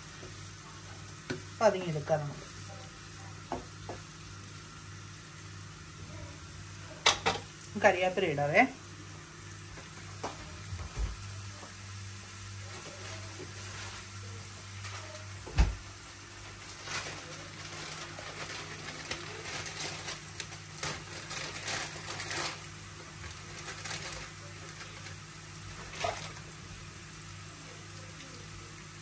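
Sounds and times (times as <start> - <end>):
sausage slices sizzling with pops: 0.0 - 6.0, 6.7 - 15.5.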